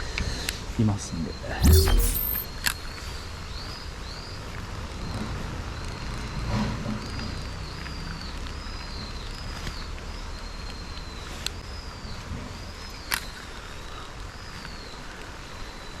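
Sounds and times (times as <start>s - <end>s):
sharp click: 1.6s - 2.5s.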